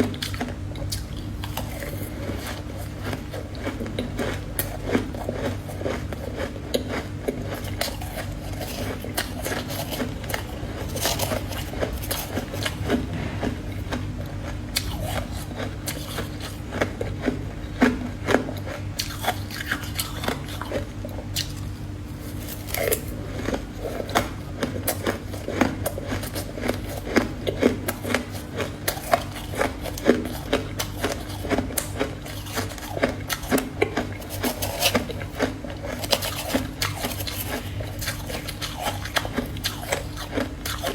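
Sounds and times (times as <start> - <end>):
chewing crunchy ice: 0.0 - 40.9
low hum: 9.9 - 17.0.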